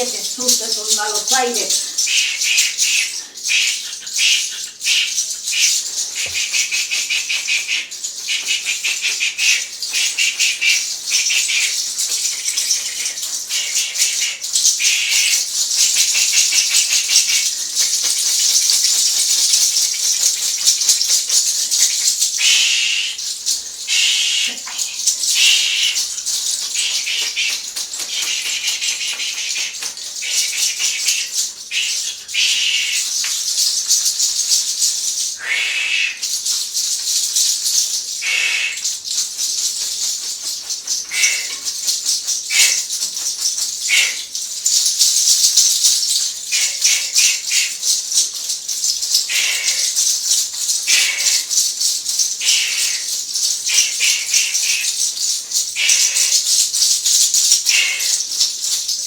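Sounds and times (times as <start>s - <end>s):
dense rustling and rattling: 0.0s - 2.2s, 11.2s - 22.4s, 32.9s - 35.4s, 38.8s - 59.0s.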